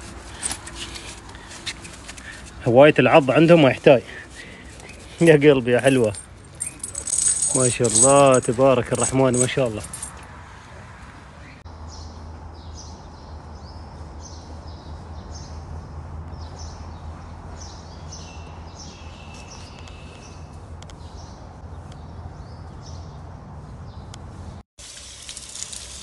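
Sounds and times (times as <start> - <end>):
small birds chirping: 11.4 - 24.6.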